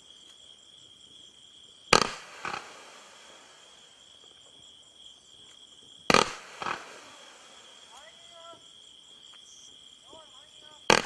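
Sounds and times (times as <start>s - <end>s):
crickets chirring: 0.0s - 11.0s
firework reports: 1.9s - 3.9s, 6.1s - 8.8s, 9.5s - 11.0s.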